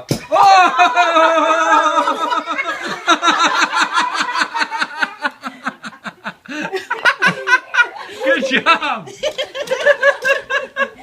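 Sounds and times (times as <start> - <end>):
person shouting excitedly: 0.3 - 2.2.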